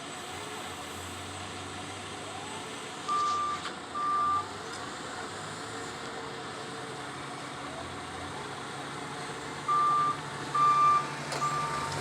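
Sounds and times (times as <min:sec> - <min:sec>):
vehicle reversing alarm beeps: 0:03.1 - 0:04.5, 0:09.6 - 0:12.0.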